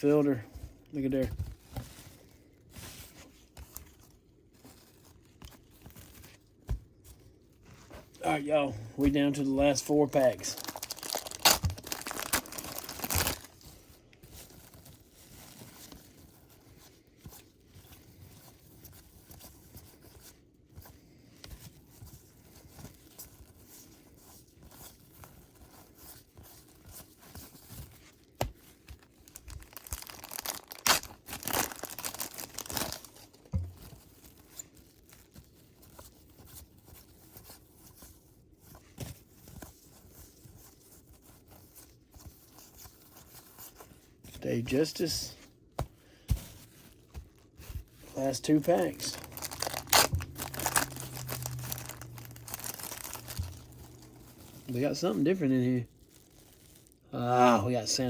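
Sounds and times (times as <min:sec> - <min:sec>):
wrapper rustling: 0:00.0 - 0:20.4, 0:21.6 - 0:45.8, 0:46.5 - 0:58.0
card pack wrappers tearing: 0:10.1 - 0:13.7, 0:29.2 - 0:33.3, 0:48.1 - 0:57.0.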